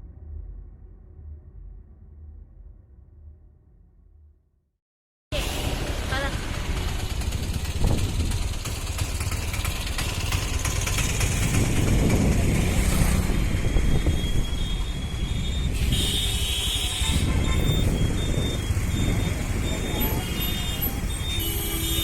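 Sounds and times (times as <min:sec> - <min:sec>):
motorbike road noise: 0:05.4 - 0:22.0
wind rushing over microphone: 0:07.2 - 0:08.6, 0:11.1 - 0:16.4, 0:17.0 - 0:21.2.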